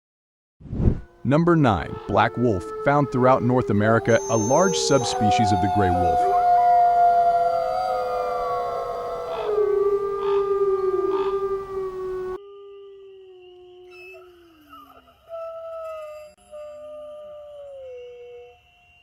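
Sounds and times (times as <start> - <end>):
wolves howling: 1.1 - 18.6.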